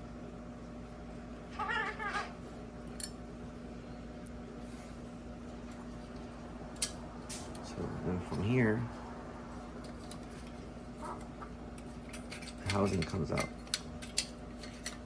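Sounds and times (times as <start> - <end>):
steady low hum: 0.0 - 15.0
cat meowing: 1.5 - 2.4.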